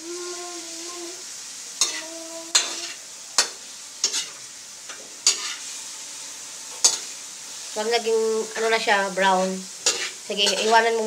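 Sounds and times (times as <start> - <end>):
chicken sizzling in a wok: 0.0 - 11.0
spatula scraping a wok: 1.8 - 5.9, 6.7 - 7.7, 9.6 - 11.0.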